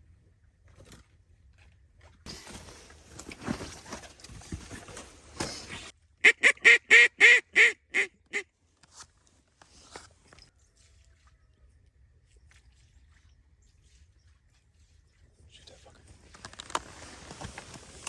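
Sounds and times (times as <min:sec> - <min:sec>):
rustling and scuffling: 0:02.3 - 0:05.9, 0:16.0 - 0:18.0.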